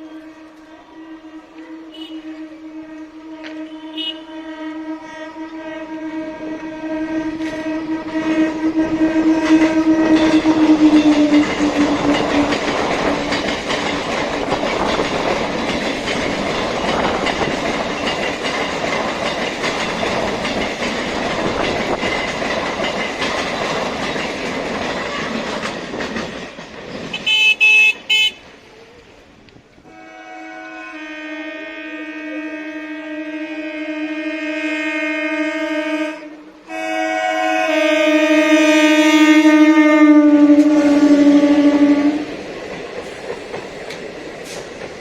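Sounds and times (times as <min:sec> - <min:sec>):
train horn: 0:00.0 - 0:13.5, 0:27.1 - 0:28.5, 0:29.8 - 0:42.4
train rumbling and clattering by: 0:00.0 - 0:45.0.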